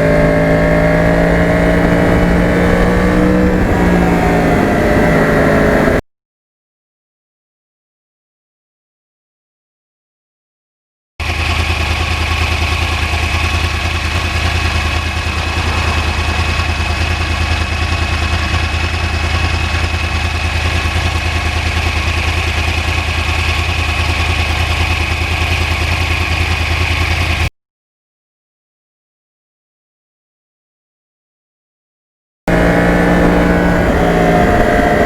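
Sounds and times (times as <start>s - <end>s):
motorcycle engine running steadily: 0.0s - 6.0s, 11.2s - 27.5s, 32.5s - 35.0s.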